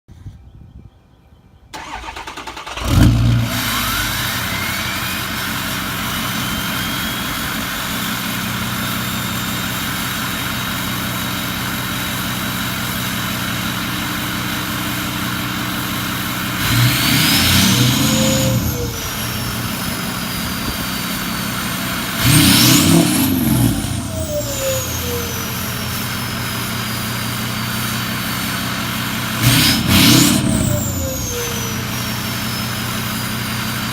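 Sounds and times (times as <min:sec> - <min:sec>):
diesel truck engine idling and revving: 0:01.8 - 0:33.9
turbo whistle: 0:03.8 - 0:10.5, 0:29.6 - 0:33.1.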